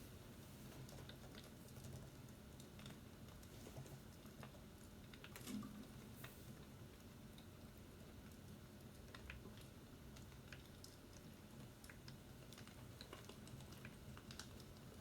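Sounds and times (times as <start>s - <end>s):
faint light clicks and taps: 0.7s - 6.4s, 8.2s - 15.0s.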